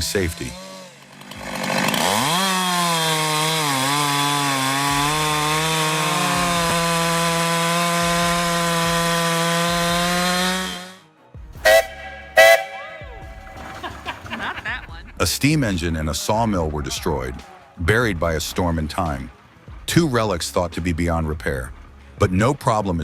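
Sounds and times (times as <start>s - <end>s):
chainsaw engine running: 0.0s - 11.0s.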